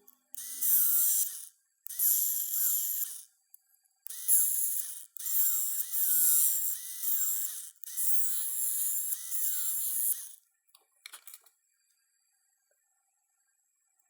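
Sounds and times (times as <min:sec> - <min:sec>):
handheld tool hissing and whirring: 0:00.1 - 0:03.3, 0:04.0 - 0:10.4.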